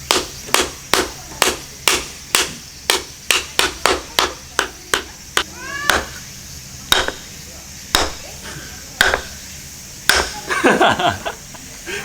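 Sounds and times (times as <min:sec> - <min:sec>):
knife batoning through firewood: 0:00.0 - 0:11.1.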